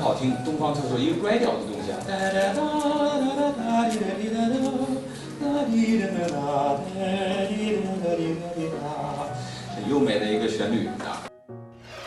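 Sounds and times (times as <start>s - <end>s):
man singing a slow melody: 2.0s - 9.9s.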